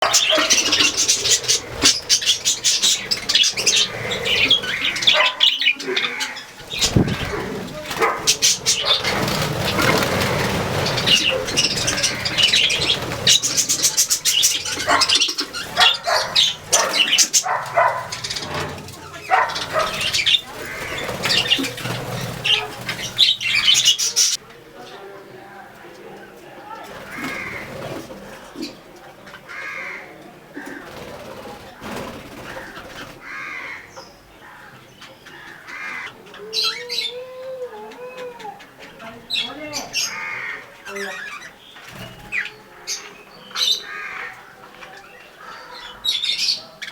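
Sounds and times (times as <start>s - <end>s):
wings flapping: 0.0s - 24.4s, 26.8s - 28.7s, 30.6s - 33.4s, 41.8s - 42.6s
birds chirping: 0.0s - 46.9s.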